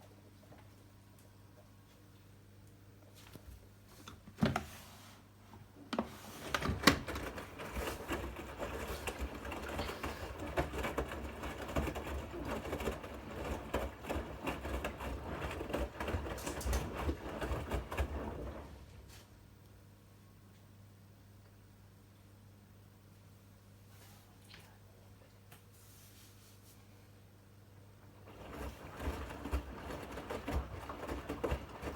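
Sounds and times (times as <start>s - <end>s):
washing machine drum clattering: 6.5s - 18.7s, 28.2s - 31.9s.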